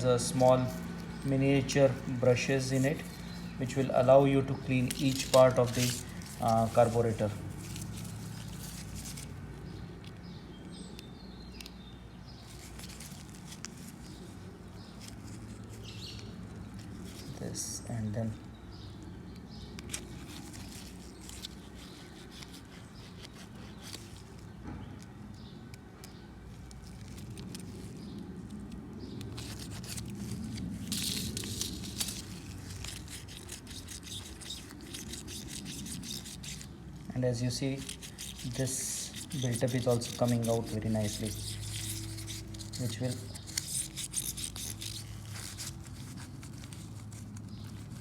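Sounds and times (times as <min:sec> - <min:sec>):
brush scrubbing metal parts: 0:00.0 - 0:09.3, 0:29.4 - 0:47.7.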